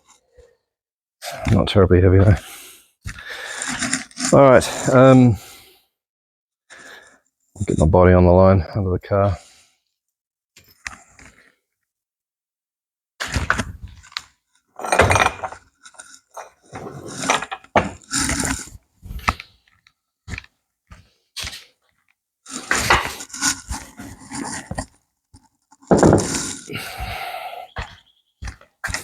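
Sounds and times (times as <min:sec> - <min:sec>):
metal parts clanking and scraping: 0:14.8 - 0:18.5, 0:25.9 - 0:26.7.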